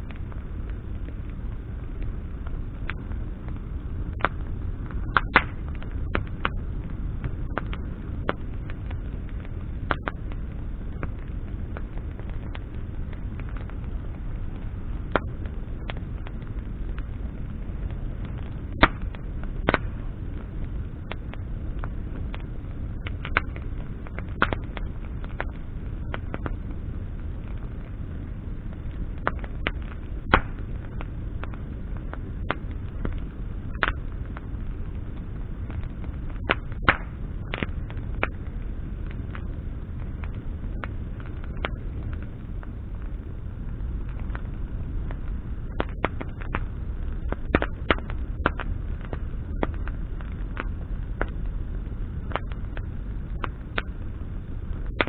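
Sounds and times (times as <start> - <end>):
campfire crackling and popping: 0.0 - 55.0
low fire rumble: 0.0 - 55.0.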